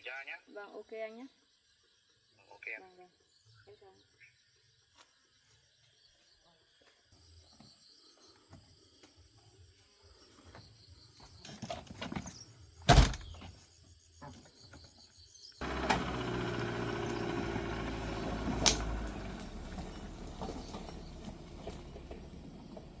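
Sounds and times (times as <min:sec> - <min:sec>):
loud thumps: 0:12.9 - 0:13.4.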